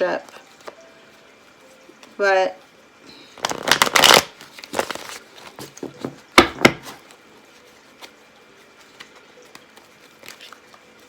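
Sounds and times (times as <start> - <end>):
cards shuffling: 3.4 - 11.0.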